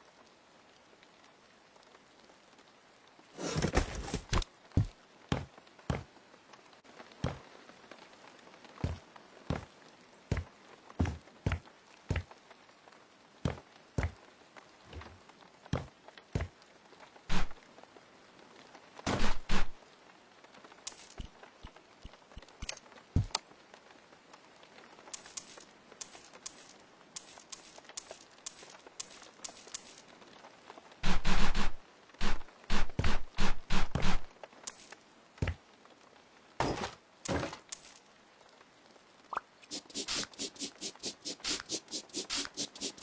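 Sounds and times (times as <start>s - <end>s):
light clinks: 20.9s - 21.4s, 25.1s - 30.2s, 34.7s - 35.1s, 37.2s - 38.2s.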